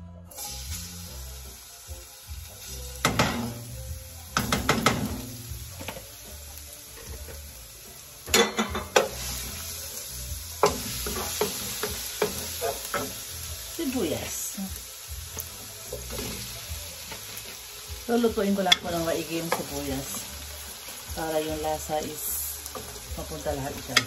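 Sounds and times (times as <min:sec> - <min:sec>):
garlic sizzling in hot oil: 0:00.3 - 0:24.0.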